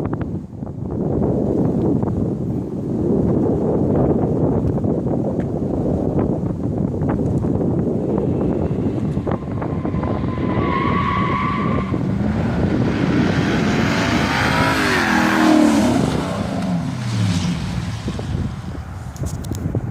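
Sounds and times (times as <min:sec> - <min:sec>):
loud engine exhaust: 0:11.7 - 0:18.8.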